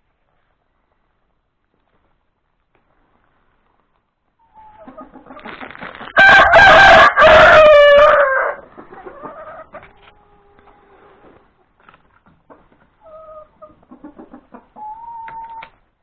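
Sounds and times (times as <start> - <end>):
hens clucking softly: 4.4 - 5.7, 8.0 - 15.8
rooster crowing: 6.2 - 8.6.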